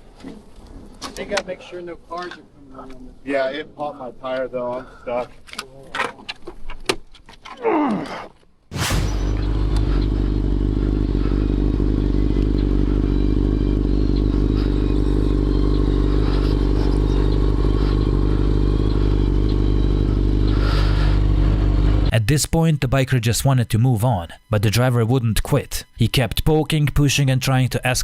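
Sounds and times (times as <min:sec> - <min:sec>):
motorcycle engine running: 0:09.2 - 0:22.1.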